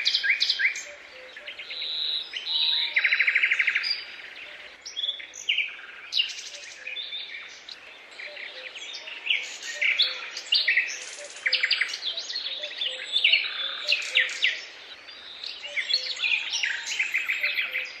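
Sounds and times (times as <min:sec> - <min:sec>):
songbirds singing: 0:00.0 - 0:18.0.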